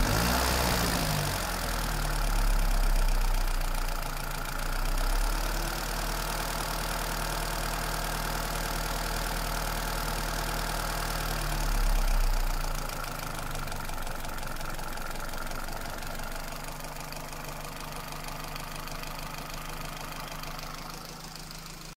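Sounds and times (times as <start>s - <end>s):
car engine idling with knock: 11.6s - 22.0s.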